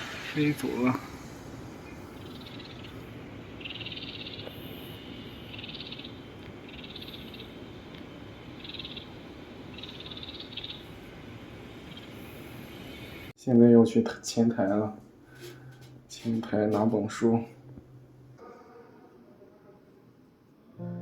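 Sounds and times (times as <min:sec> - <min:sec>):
high pulsed animal trills: 0:02.1 - 0:11.0.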